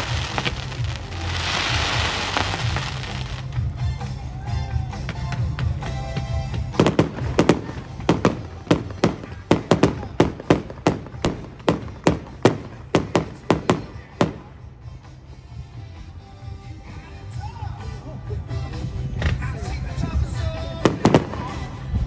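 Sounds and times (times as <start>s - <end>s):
fireworks bangs: 0.0s - 3.8s, 4.8s - 14.9s, 19.2s - 22.0s
background music: 0.0s - 22.0s.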